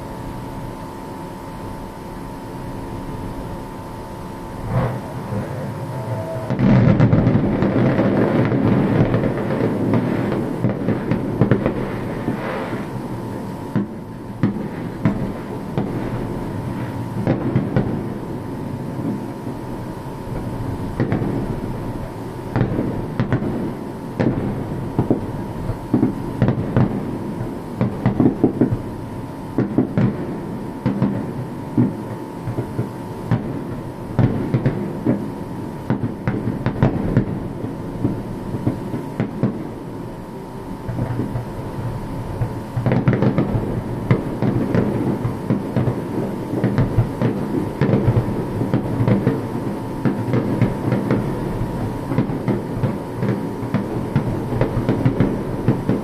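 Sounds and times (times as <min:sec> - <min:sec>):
thin steady high tone: 0:00.0 - 0:07.1
fireworks booming and crackling: 0:00.0 - 0:56.0.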